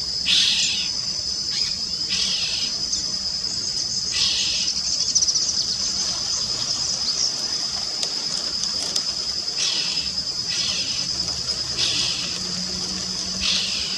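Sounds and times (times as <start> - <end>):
high-pitched insect drone: 0.0 - 13.9
bird harsh rasping call: 13.4 - 13.9.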